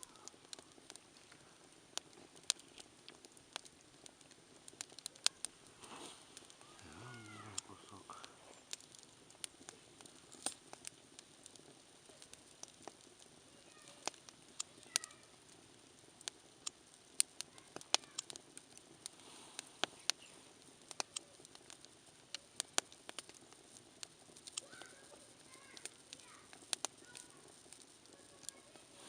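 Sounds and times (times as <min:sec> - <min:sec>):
campfire crackling and popping: 0:00.0 - 0:29.0
low steady hiss: 0:00.0 - 0:29.0.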